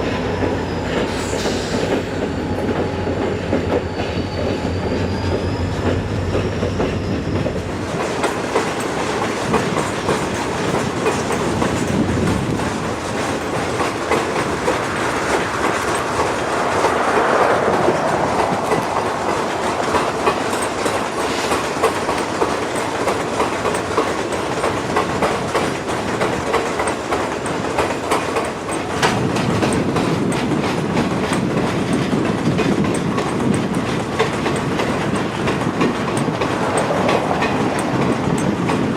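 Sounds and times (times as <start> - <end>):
wheel squeal: 0.0 - 7.7
train wheels clicking over rail joints: 0.0 - 38.9.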